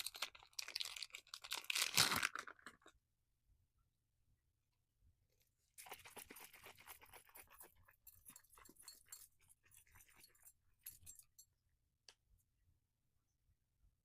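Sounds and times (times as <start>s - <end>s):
plastic packaging crinkling: 0.0s - 2.9s.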